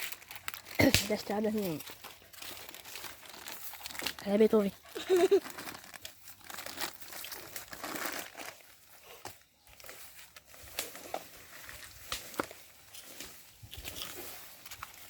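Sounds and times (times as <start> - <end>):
brush and twigs crackling: 0.0 - 8.9, 9.6 - 15.0
twigs snapping: 0.5 - 1.7, 12.0 - 12.6.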